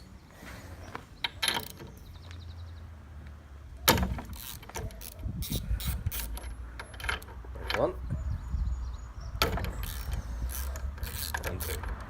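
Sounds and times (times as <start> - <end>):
socket ratchet clicking: 4.3 - 7.3, 9.5 - 12.0.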